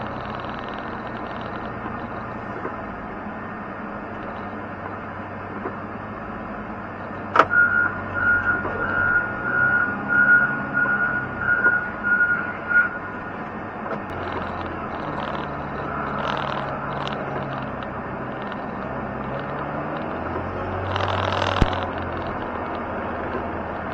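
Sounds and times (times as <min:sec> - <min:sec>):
snow plow engine running: 0:00.0 - 0:23.9
reversing alarm beeps: 0:07.5 - 0:13.2.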